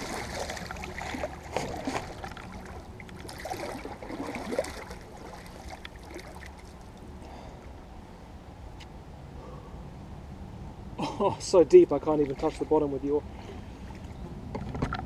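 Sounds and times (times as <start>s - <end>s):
water swirling around an oar: 0.0s - 7.0s.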